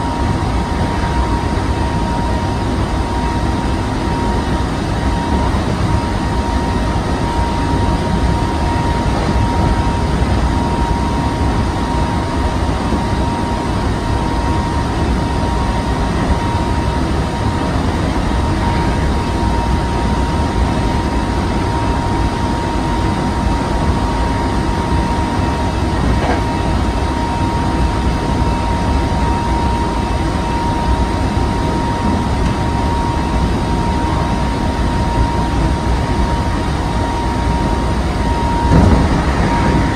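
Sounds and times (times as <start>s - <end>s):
steady high train whine: 0.0s - 39.9s
wheels rumbling on rail: 0.0s - 39.9s.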